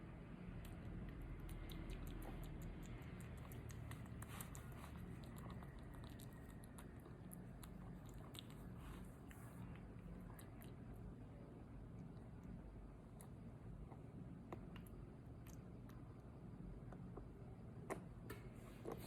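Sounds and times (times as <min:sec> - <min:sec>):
baby monkey chewing: 0:00.6 - 0:10.9.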